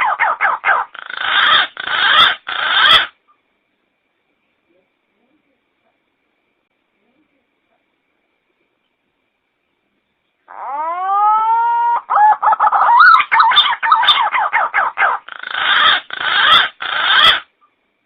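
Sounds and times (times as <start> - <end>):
harsh rasping bird notes: 0.0 - 3.1, 12.4 - 17.5
pigeon warbling whistles: 10.6 - 17.4.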